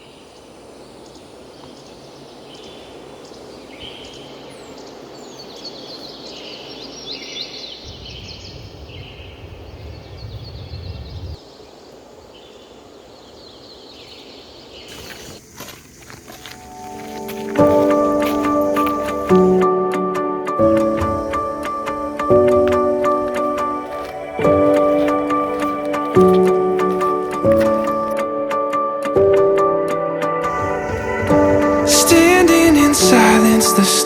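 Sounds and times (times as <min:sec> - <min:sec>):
birds calling and chirping: 0:00.0 - 0:19.7, 0:20.6 - 0:28.2, 0:30.4 - 0:34.0
steady hiss: 0:09.4 - 0:19.8, 0:20.6 - 0:28.2, 0:30.4 - 0:34.0.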